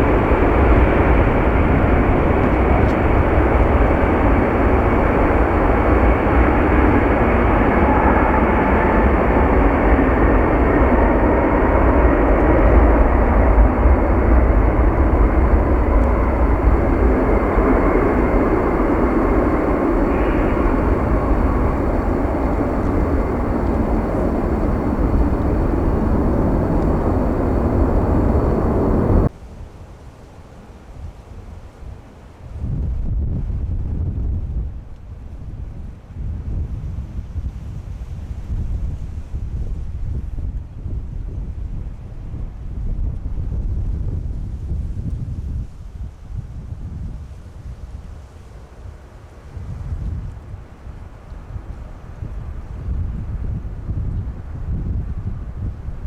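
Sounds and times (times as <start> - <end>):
jet engines roaring: 0.0 - 29.3
faint wind noise: 0.0 - 56.0.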